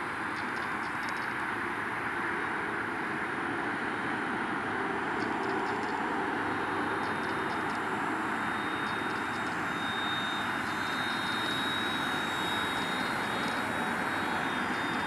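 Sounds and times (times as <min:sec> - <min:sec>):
thin high whine: 0:01.7 - 0:15.0
toy helicopter motor buzzing: 0:06.8 - 0:15.0.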